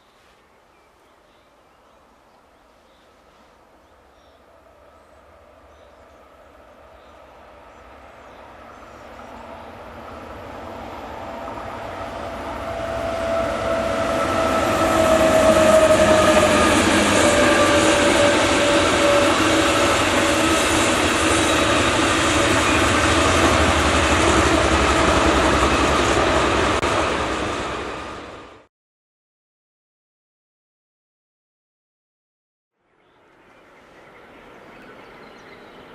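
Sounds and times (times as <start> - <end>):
train passing: 3.2 - 28.7, 33.2 - 35.9
locomotive tone: 7.9 - 28.4.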